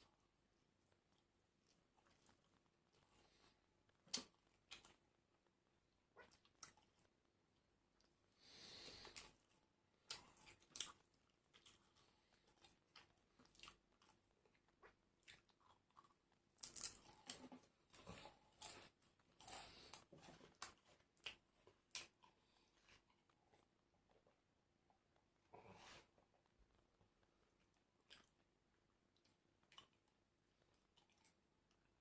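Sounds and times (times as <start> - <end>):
person chewing crunchy food: 8.4 - 24.4.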